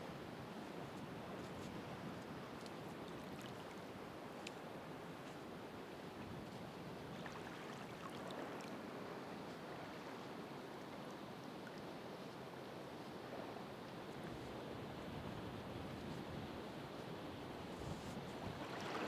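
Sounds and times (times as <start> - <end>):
ocean surf washing on shore: 16.8 - 19.0.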